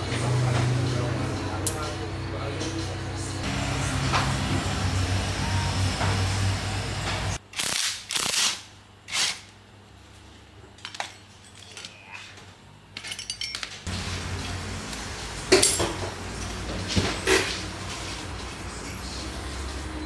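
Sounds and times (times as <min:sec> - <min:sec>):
low machine hum: 0:00.0 - 0:07.4
metal clinking and knocking: 0:13.0 - 0:13.9, 0:15.5 - 0:16.2.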